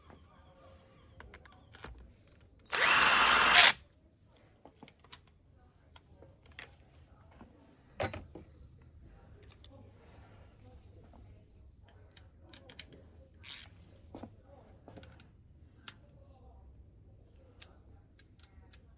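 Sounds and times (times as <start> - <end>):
cordless drill running: 2.7 - 3.8.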